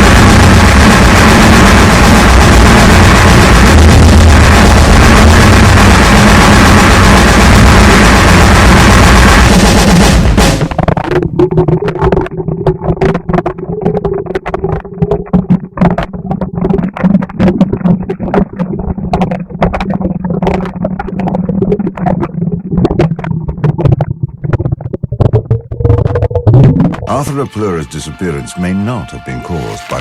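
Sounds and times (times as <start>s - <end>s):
low droning hum: 0.0s - 14.2s
distorted clattering hits: 0.0s - 27.4s.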